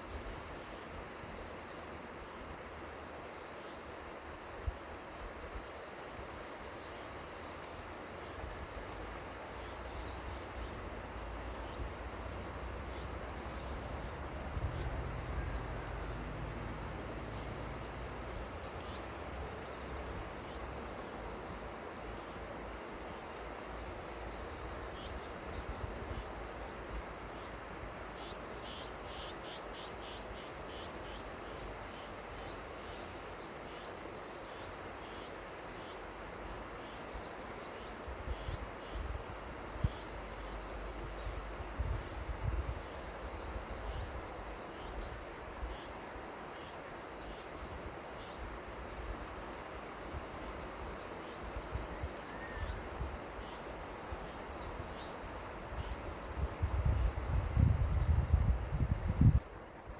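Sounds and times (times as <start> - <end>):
river water rushing: 7.8 - 24.6.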